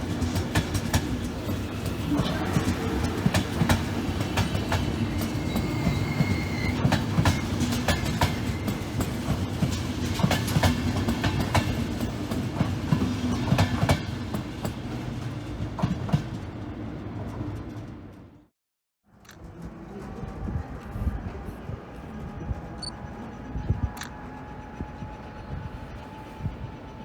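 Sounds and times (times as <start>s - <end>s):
train rumble: 0.0s - 18.5s, 19.1s - 27.0s
thin wheel squeal: 5.4s - 6.8s.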